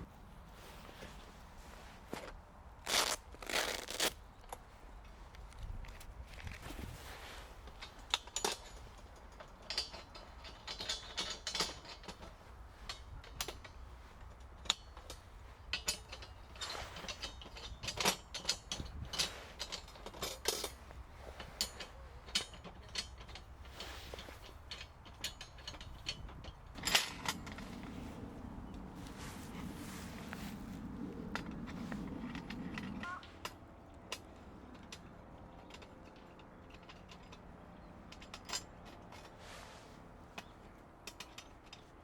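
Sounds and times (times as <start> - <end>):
camping gear clicking and clinking: 0.0 - 42.0.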